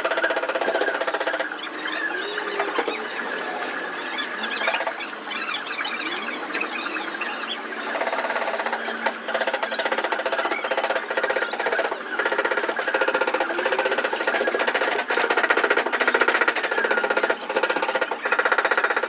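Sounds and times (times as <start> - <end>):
power tool hammering: 0.0 - 1.5, 7.9 - 19.0.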